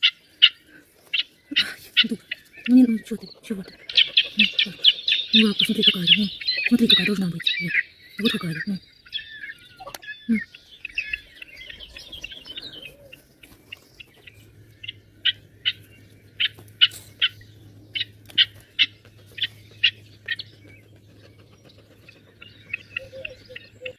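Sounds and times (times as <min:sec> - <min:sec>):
bird chirping: 0:00.0 - 0:23.9.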